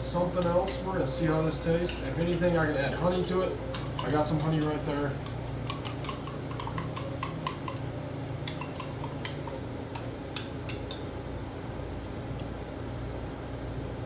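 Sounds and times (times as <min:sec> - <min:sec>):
spoon clinking in a cup: 0:03.7 - 0:09.5.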